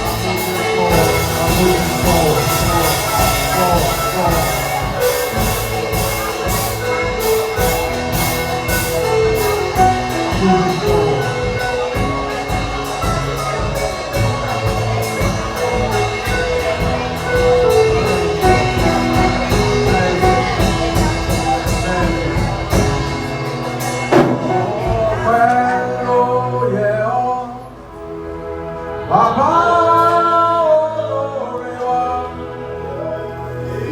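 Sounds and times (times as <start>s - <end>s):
drum kit with cymbal beat: 0.0s - 25.5s
person singing: 0.0s - 27.9s, 29.0s - 33.9s
held chords: 0.0s - 33.9s.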